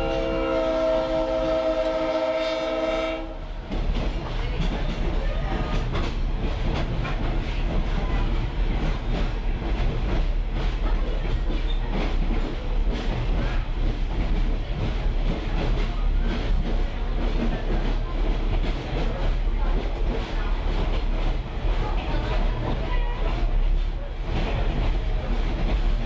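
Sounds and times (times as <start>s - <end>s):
rail car rumbling on track: 0.0s - 26.0s.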